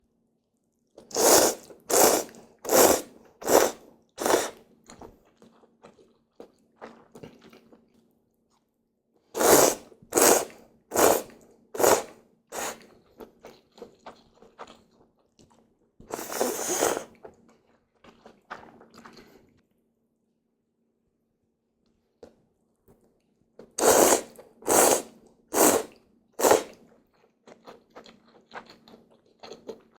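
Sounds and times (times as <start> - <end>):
person chewing: 1.0 - 7.8, 9.4 - 19.5, 23.6 - 30.0
person slurping noodles: 1.1 - 4.6, 9.4 - 12.9, 16.1 - 17.2, 23.8 - 26.8.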